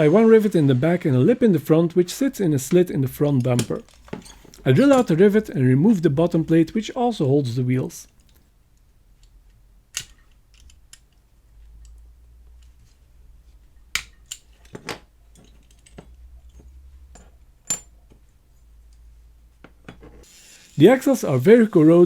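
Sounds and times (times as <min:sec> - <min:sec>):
metal parts clicking and tapping: 0:02.7 - 0:06.9, 0:09.2 - 0:12.0, 0:13.9 - 0:18.0.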